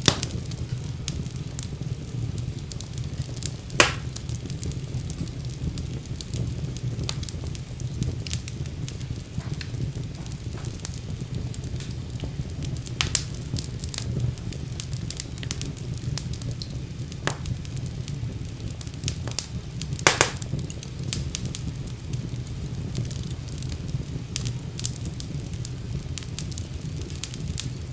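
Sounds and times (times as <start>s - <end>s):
fire flames rumbling: 0.0s - 27.9s
wood fire crackling and popping: 0.0s - 27.9s.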